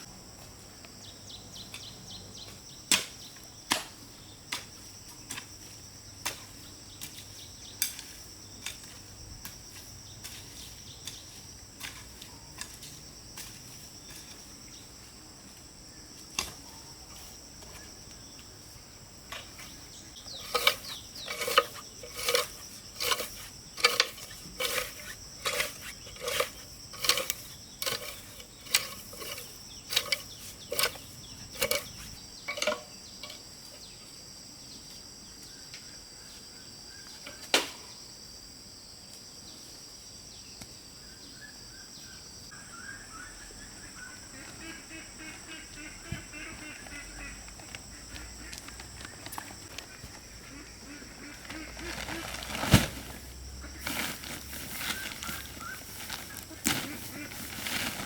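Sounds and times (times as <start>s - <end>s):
insect chirring: 0.9s - 39.2s.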